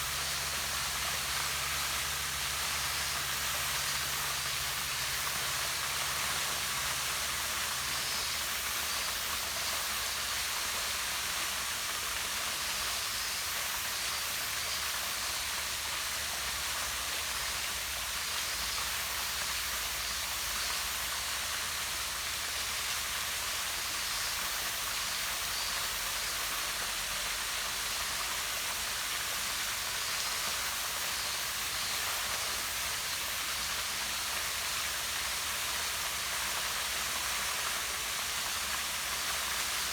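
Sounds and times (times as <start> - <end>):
waterfall splashing into pond: 0.0 - 39.9.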